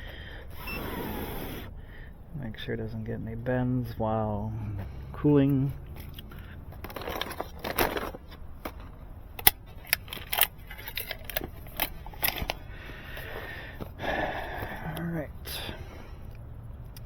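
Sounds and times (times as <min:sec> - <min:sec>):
clicks and rustles of handling gear: 0:05.9 - 0:14.0.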